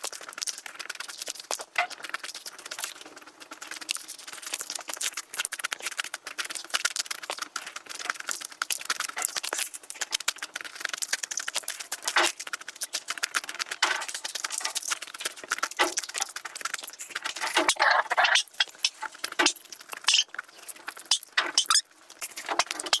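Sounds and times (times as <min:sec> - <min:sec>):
food being chewed and crunched: 0:00.0 - 0:23.0.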